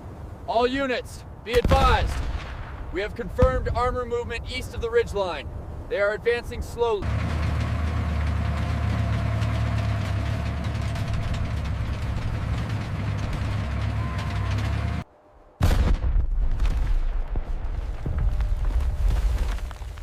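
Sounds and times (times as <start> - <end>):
armored vehicles rumbling: 0.0 - 15.3
loud explosion boom: 15.6 - 18.6.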